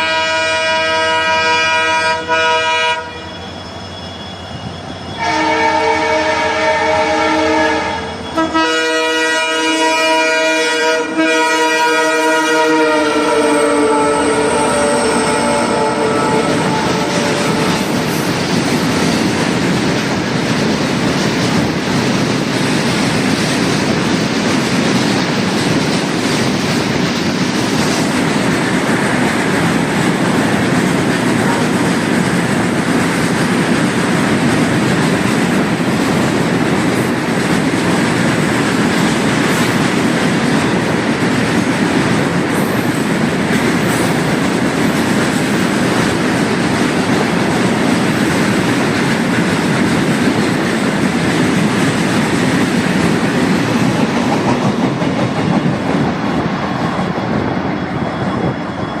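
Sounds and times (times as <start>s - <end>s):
train rumbling on rails: 0.0s - 59.0s
wheels clacking over rail joints: 15.3s - 57.2s.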